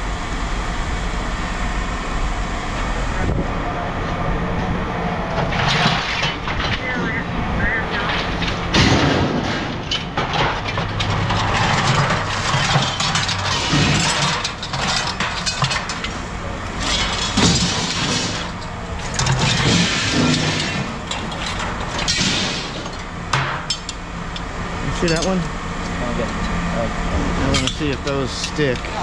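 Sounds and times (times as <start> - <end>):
vehicle engine idling: 0.0 - 29.0
scrap metal clanking: 5.3 - 7.2, 7.9 - 26.6, 27.4 - 29.0.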